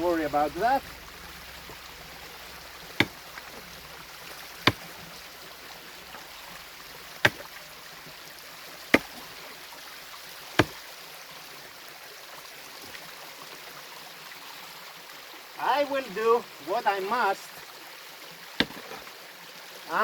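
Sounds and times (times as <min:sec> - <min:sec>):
mountain stream running: 0:00.0 - 0:20.0
hard strikes on rock: 0:01.3 - 0:07.6, 0:08.8 - 0:09.4, 0:10.6 - 0:10.8, 0:18.6 - 0:19.0.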